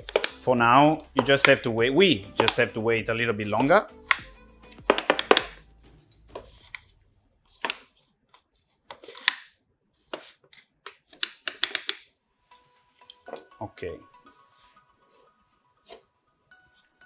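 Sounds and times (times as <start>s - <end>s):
kitchen items knocking and clicking: 0.0s - 0.5s, 1.1s - 1.7s, 2.3s - 2.6s, 3.5s - 5.6s, 10.9s - 12.1s.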